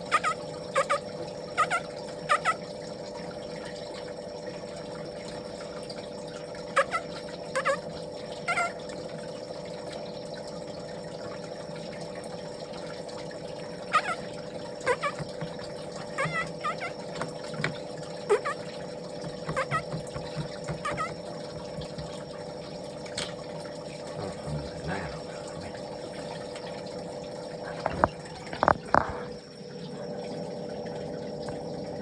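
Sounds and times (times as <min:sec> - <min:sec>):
baby birds chirping: 0:19.5 - 0:19.9.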